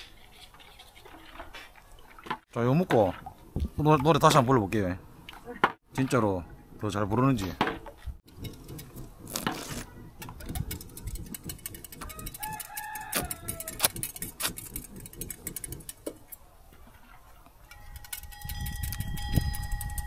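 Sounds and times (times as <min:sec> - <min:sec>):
rooster crowing: 0:12.0 - 0:13.9.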